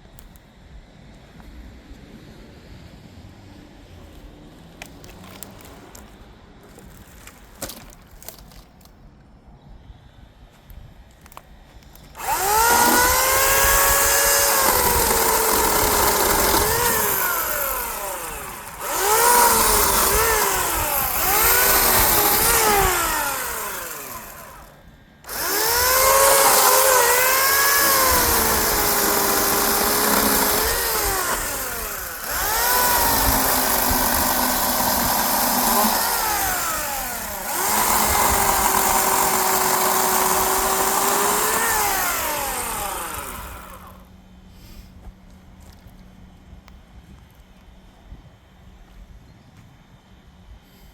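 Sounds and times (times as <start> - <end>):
electric chainsaw cutting log: 12.2 - 44.1.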